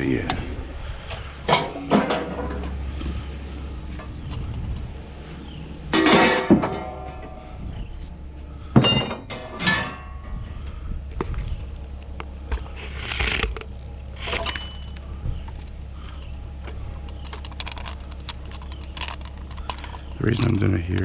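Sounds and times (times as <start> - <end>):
steady low hum: 0.0 - 21.0
scrap metal clanking: 1.1 - 3.3, 5.9 - 7.6, 8.7 - 10.4.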